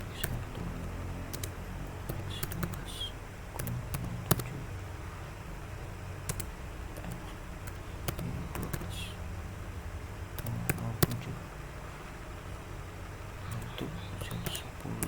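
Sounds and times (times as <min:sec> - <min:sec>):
low steady hum: 0:00.0 - 0:15.0
keyboard keystrokes: 0:01.3 - 0:02.8, 0:03.6 - 0:04.5, 0:06.3 - 0:08.9.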